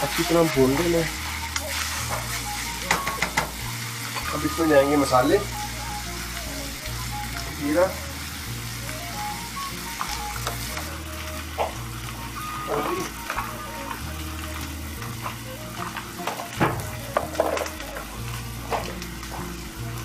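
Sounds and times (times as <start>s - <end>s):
meat sizzling in a frying pan: 0.0s - 20.0s
sharp pops and crackles: 11.6s - 19.6s.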